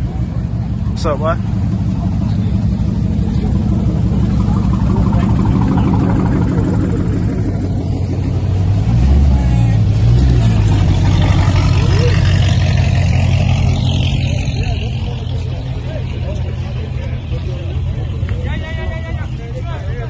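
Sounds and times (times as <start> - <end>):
car engine deep exhaust rumble: 0.0 - 20.0.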